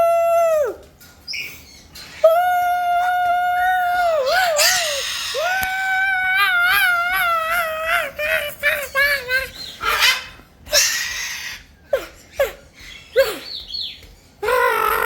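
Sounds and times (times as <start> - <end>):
bird calling with warble: 4.2 - 5.5, 8.2 - 15.0.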